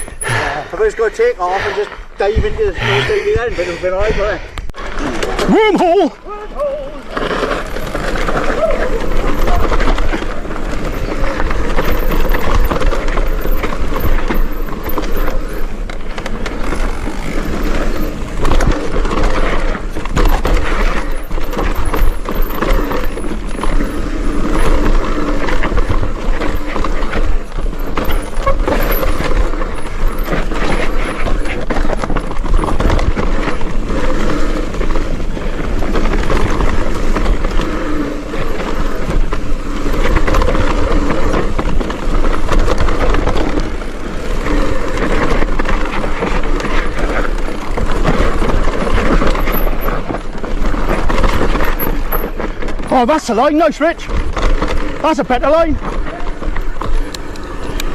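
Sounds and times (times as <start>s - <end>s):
bike knocking and rattling: 0.0s - 1.5s, 4.6s - 57.9s
tyre noise and wind rush: 0.0s - 57.9s.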